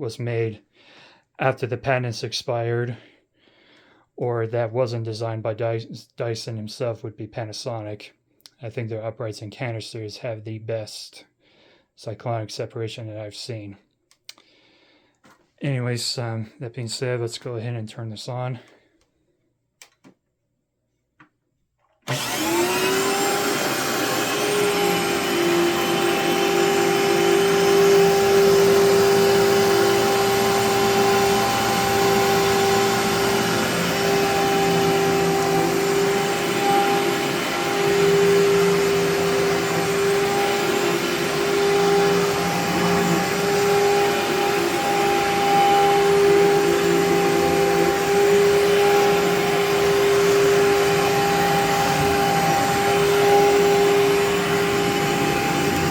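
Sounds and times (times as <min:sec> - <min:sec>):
vacuum motor whining: 0:22.1 - 0:55.9.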